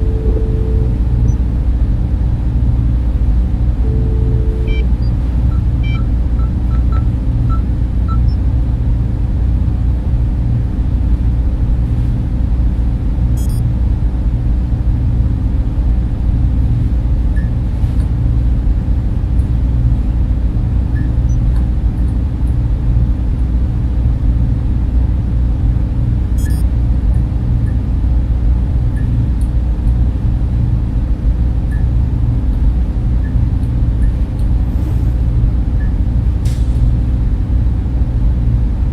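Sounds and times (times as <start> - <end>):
faint short beeps: 0.0 - 1.4, 3.8 - 8.4, 13.4 - 13.6, 26.4 - 26.7
server and cooling fans humming: 0.0 - 38.9.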